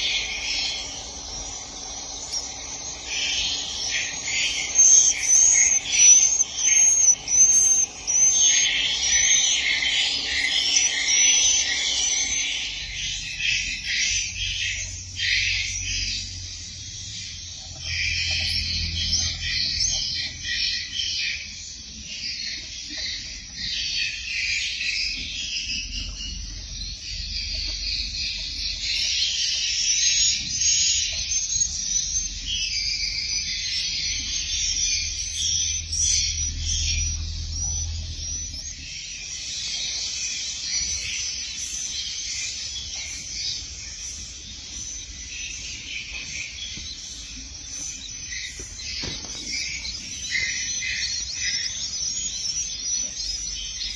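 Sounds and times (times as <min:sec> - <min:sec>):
swiftlets twittering: 0:00.0 - 0:16.2, 0:28.0 - 0:46.1.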